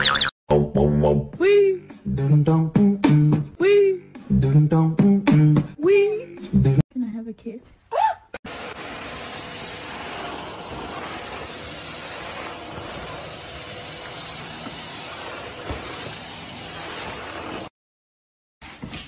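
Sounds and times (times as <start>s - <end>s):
vacuum cleaner running: 8.5s - 17.7s.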